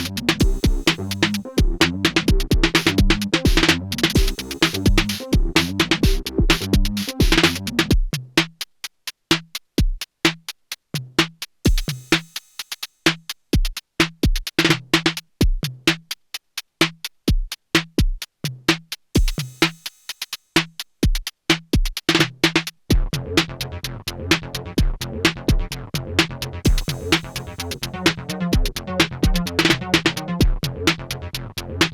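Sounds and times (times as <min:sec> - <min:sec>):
deep kick drum: 0:00.0 - 0:08.2, 0:11.7 - 0:12.0, 0:15.4 - 0:15.7, 0:22.9 - 0:23.3, 0:24.8 - 0:25.7, 0:26.7 - 0:27.4, 0:28.6 - 0:29.8, 0:30.4 - 0:30.8
drum machine playing techno: 0:00.0 - 0:08.7, 0:09.3 - 0:31.9.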